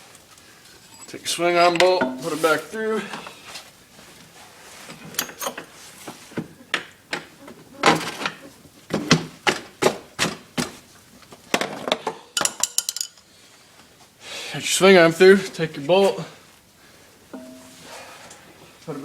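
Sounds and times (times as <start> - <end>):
metal knocks: 2.0 - 2.4, 17.4 - 17.8.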